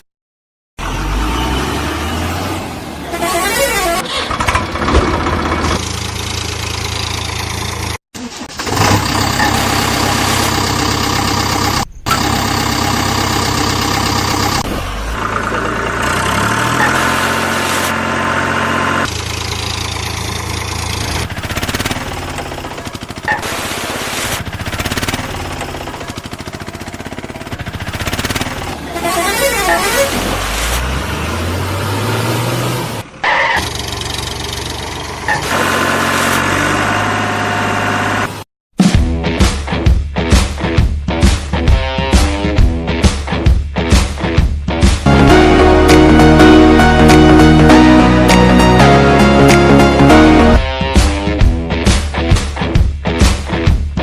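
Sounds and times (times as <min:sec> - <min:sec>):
horn honks: 0:03.0 - 0:04.2, 0:28.8 - 0:30.6
cartoon engines revving: 0:08.2 - 0:38.4.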